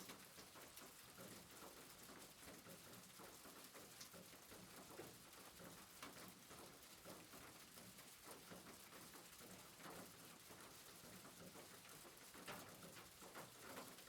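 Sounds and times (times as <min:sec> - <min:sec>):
soft rain hiss: 0:00.0 - 0:14.0.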